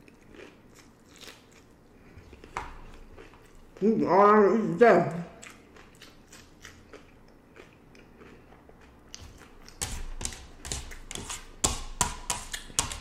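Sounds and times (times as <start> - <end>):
crunchy taco chewing: 0.0 - 3.8, 5.4 - 11.6.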